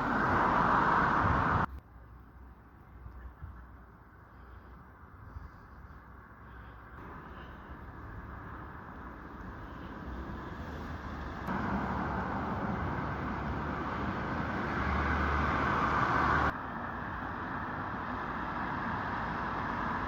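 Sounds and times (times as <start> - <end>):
passing vehicles rushing: 0.0 - 1.7, 6.6 - 20.0.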